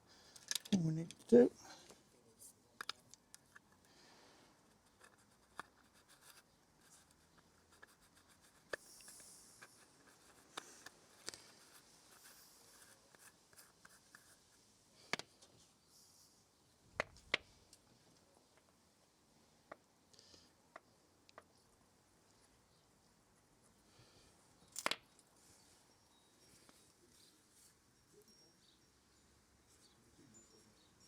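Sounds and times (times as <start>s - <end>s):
small clicks and taps: 2.8s - 3.8s, 20.7s - 21.5s.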